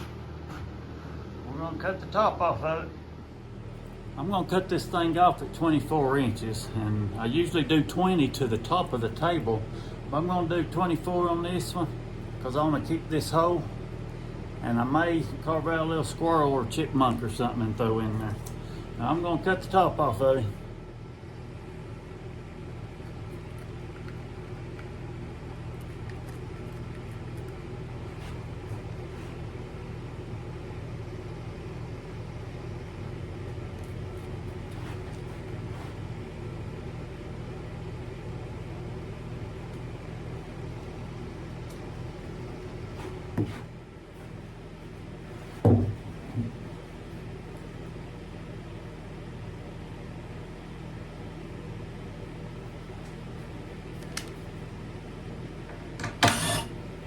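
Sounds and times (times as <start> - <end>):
loud heavy thump: 45.6 - 46.5
small knock: 45.6 - 46.5.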